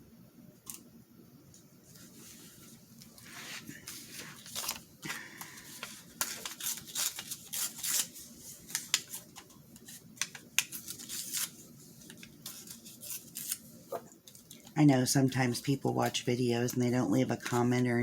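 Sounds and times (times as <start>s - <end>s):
paper rustling and crinkling: 1.9s - 14.8s
paper snipping or tearing: 6.2s - 9.1s, 12.4s - 13.6s.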